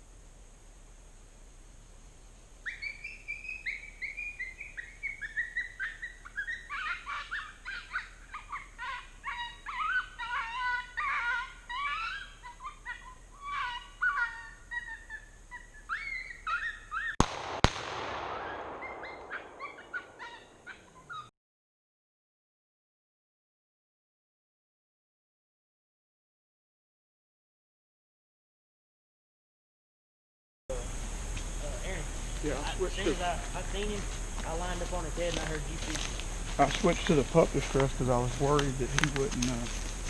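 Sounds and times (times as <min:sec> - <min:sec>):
coyote yipping and howling: 0:02.6 - 0:17.2, 0:18.1 - 0:21.3
shotgun shots: 0:17.2 - 0:20.7.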